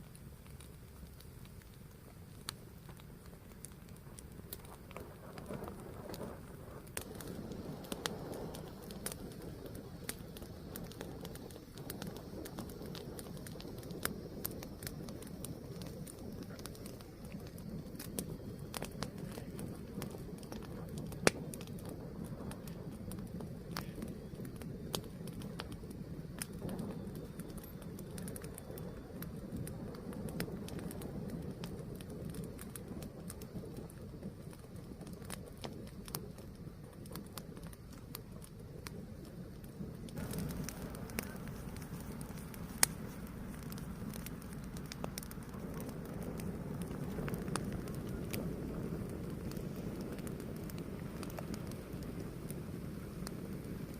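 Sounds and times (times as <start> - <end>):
fire crackling: 0.0 - 53.9
loud pops: 40.1 - 52.0.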